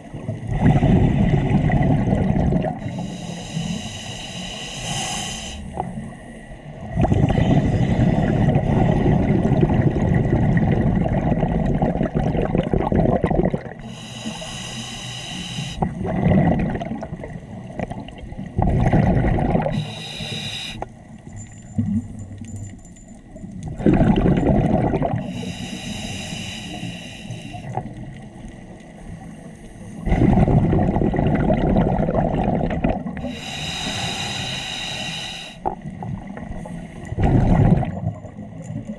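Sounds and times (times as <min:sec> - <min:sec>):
exhaled bubbles rushing underwater: 0:00.0 - 0:03.9, 0:05.7 - 0:14.3, 0:15.8 - 0:20.8, 0:23.6 - 0:26.3, 0:27.4 - 0:34.1, 0:35.6 - 0:38.9
hissing regulator inhalations: 0:02.8 - 0:06.0, 0:13.8 - 0:16.0, 0:19.7 - 0:20.9, 0:25.2 - 0:27.8, 0:33.2 - 0:35.7.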